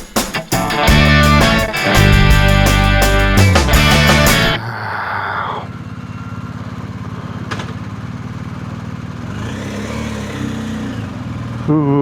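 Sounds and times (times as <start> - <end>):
motorcycle engine idling: 5.7 - 11.7.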